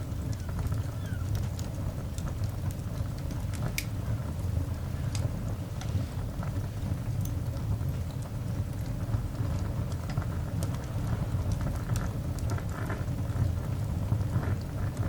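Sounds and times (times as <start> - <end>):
coal fire crackling and popping: 0.0 - 15.0
low fire rumble: 0.0 - 15.0.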